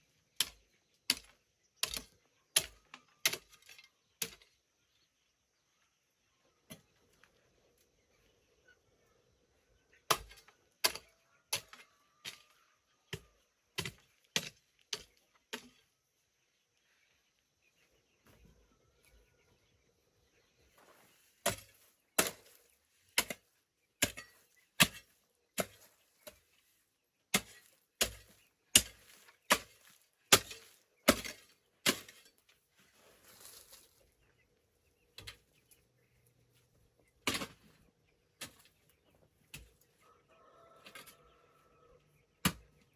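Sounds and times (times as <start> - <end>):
hand tool chopping into ground: 0.4 - 3.6, 13.8 - 15.8, 21.4 - 26.4, 27.3 - 32.4, 37.2 - 37.6, 42.4 - 42.8.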